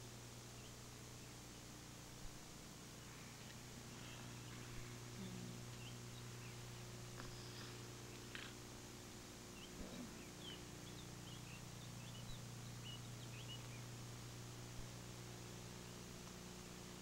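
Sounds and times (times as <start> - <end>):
faint birds chirping: 0.0 - 17.0
steady low hum and hiss: 0.0 - 17.0.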